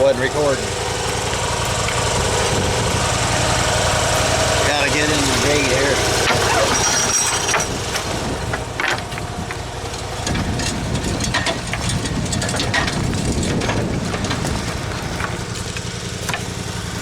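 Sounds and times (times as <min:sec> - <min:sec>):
machine knocks and rattles: 0:00.0 - 0:17.0
mower engine running: 0:00.0 - 0:17.0.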